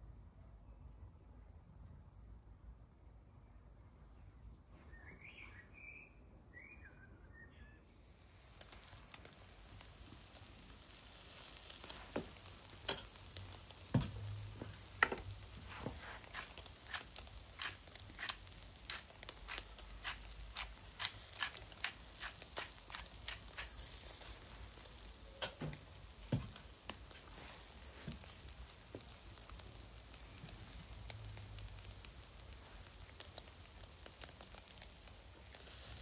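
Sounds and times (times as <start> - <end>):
meat sizzling on a barbecue: 7.8 - 36.0
fire pops and crackles: 8.0 - 36.0.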